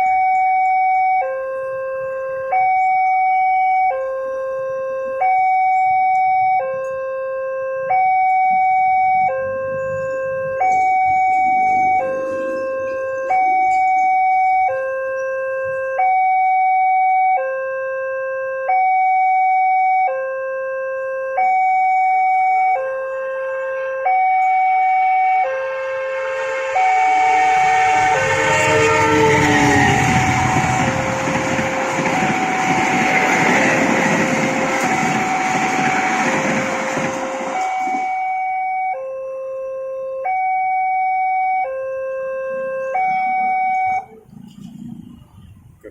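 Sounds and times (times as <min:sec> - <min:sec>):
two-tone crossing alarm: 0:00.0 - 0:45.5
approaching train rumble: 0:09.4 - 0:14.9, 0:25.6 - 0:38.5, 0:43.9 - 0:45.9.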